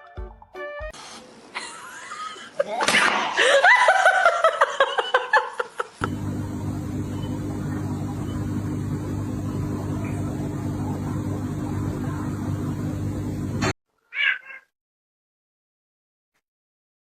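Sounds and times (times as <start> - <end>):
voices: 6.0 - 13.6
low mechanical hum: 6.0 - 13.7.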